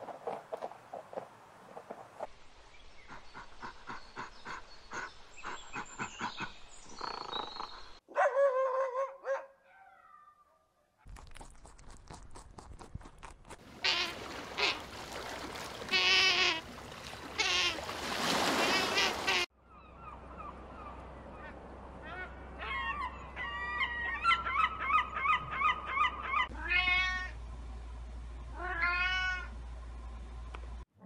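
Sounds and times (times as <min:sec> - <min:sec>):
gulls crying: 0:13.7 - 0:27.4
sea otter squealing: 0:17.4 - 0:17.8
cat meowing: 0:26.6 - 0:27.4, 0:28.6 - 0:29.5.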